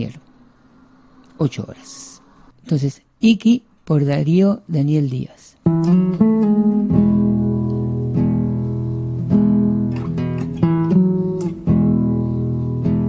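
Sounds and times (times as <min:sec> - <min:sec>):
acoustic guitar strumming chords: 0:05.6 - 0:13.0.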